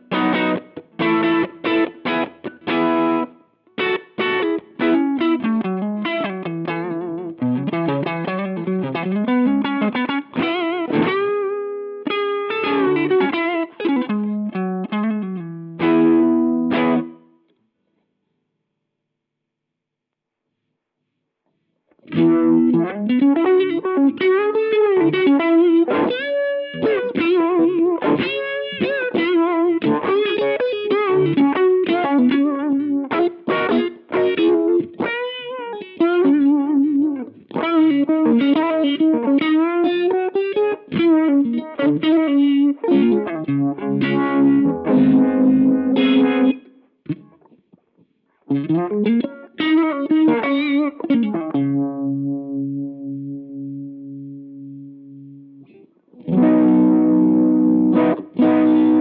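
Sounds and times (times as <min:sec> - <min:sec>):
electric guitar with modulation: 0:00.0 - 0:17.6, 0:21.9 - 0:59.0.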